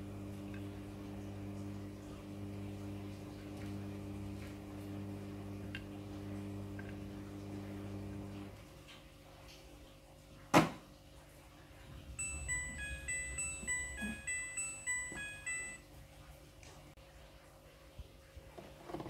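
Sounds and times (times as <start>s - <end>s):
steady hum: 11.4s - 16.6s
washing machine beep tune: 11.9s - 16.2s.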